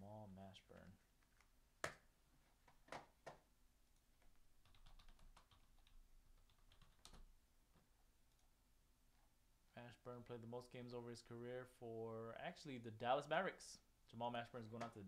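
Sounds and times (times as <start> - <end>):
computer keyboard typing and clicking: 4.6 - 7.3.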